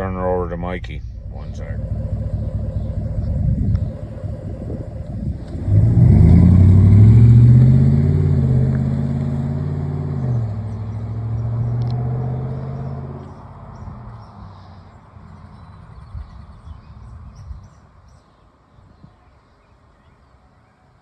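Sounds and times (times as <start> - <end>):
pickup truck accelerating: 1.0 - 17.2.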